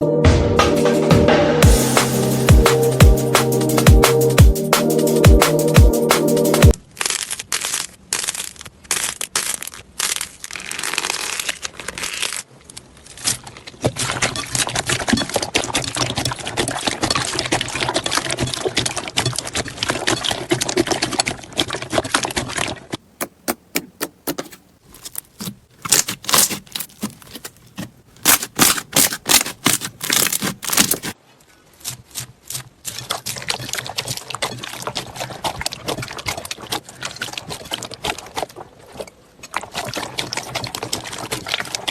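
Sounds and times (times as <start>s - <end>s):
slime crackling and popping: 6.7s - 13.8s, 23.2s - 31.2s.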